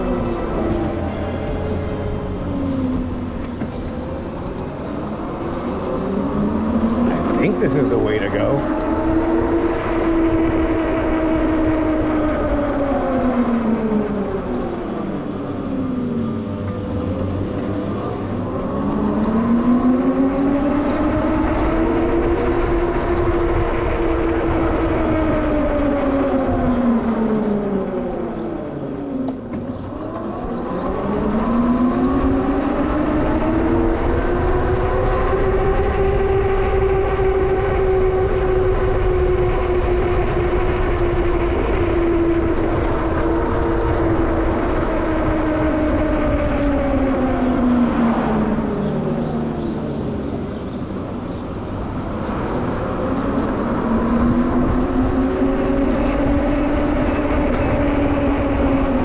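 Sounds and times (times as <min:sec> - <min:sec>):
wind and road noise: 0:00.0 - 0:59.0
electric bike motor whining: 0:53.5 - 0:59.0.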